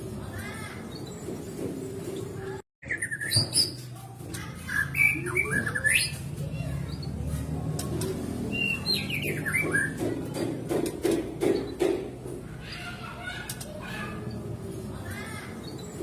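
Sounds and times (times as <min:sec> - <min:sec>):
bird whistled song: 0:02.8 - 0:03.8, 0:04.7 - 0:06.2, 0:08.5 - 0:10.0.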